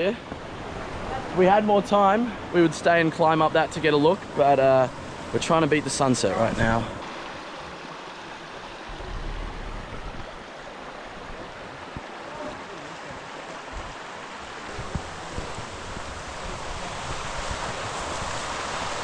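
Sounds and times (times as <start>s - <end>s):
flowing river rushing: 0.0s - 19.0s
soft low knocks: 8.9s - 10.5s.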